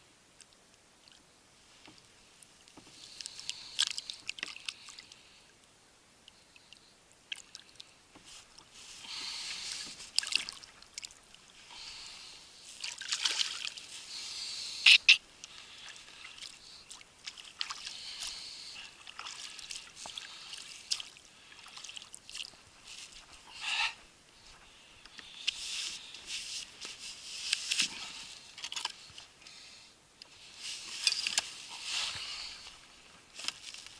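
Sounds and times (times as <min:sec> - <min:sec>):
water splashing around kayak: 0:02.7 - 0:05.2, 0:07.3 - 0:23.5.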